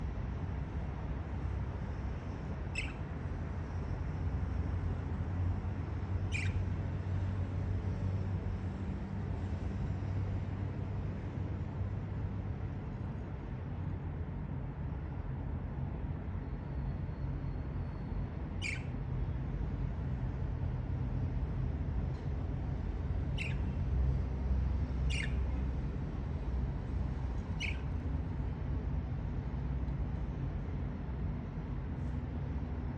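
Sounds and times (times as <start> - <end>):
budgerigar chirps: 2.7 - 3.0, 6.3 - 6.6, 18.6 - 18.9, 23.3 - 23.8, 25.1 - 25.5, 27.6 - 27.9.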